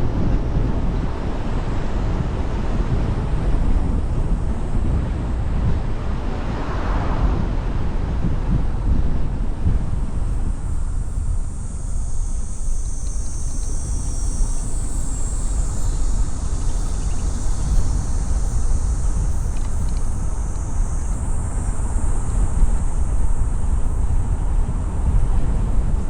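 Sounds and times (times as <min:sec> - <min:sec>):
car road and wind rumble: 0:00.0 - 0:26.0
insect chirring: 0:09.9 - 0:26.0.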